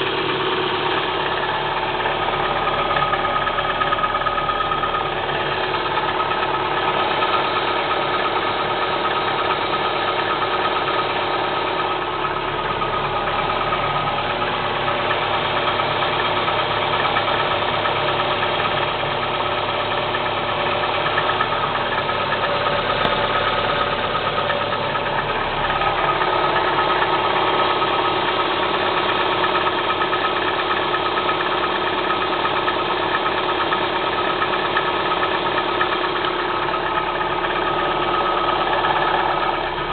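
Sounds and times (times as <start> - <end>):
car engine idling with tapping: 0.0 - 39.9.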